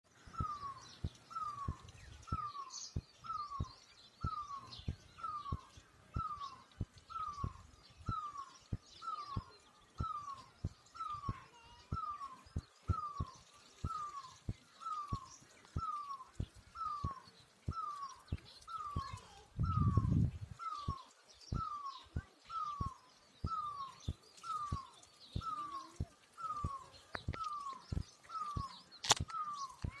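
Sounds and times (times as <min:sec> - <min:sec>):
other birds chirping: 0:00.1 - 0:30.0
low rumble: 0:19.6 - 0:20.6
sharp click: 0:28.6 - 0:29.9.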